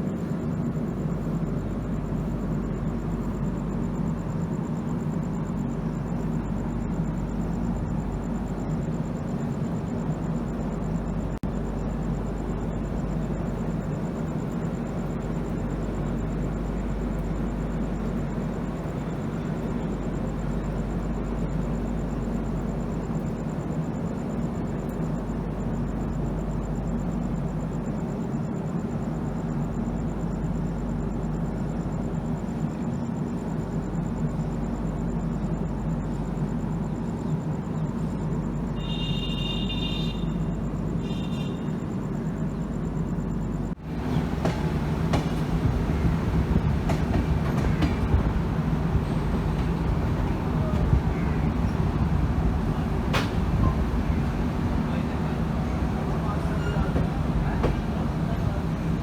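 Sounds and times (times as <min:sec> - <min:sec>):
train rumbling: 0:00.0 - 0:59.0
train wheels rattling and clicking: 0:44.0 - 0:59.0.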